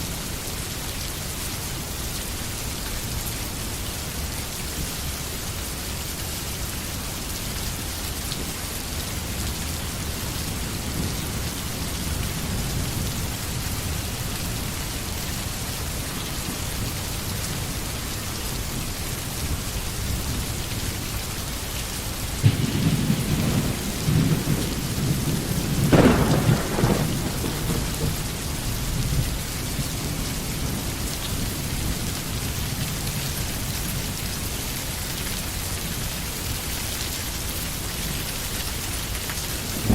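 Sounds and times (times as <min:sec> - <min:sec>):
steady rain on forest: 0:00.0 - 0:39.9
thunder rumbling: 0:22.4 - 0:32.1, 0:39.7 - 0:39.9.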